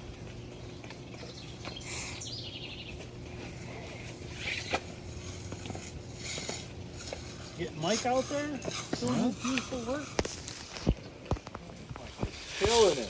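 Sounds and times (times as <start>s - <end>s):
birds chirping: 0.0s - 12.3s
steady low hum: 0.0s - 13.0s.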